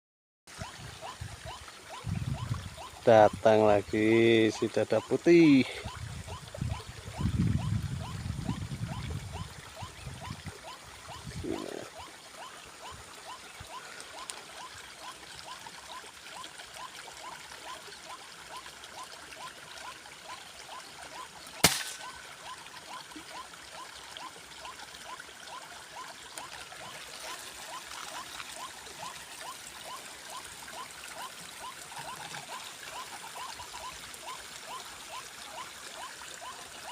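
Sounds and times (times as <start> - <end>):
trickling water: 0.5 - 36.9
air rifle shot: 21.6 - 22.0.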